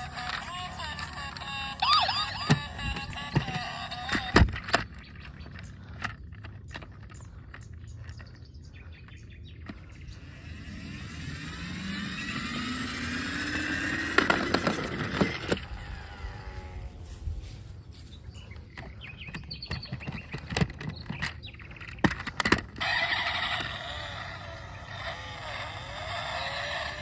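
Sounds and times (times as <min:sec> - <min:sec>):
motor whine rising: 0:00.0 - 0:04.4, 0:09.7 - 0:17.6, 0:22.8 - 0:27.0.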